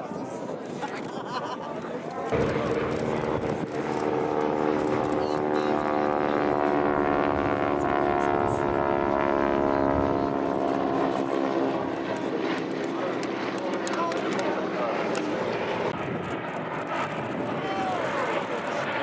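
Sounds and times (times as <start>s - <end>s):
propeller aircraft engine droning: 2.2s - 19.0s.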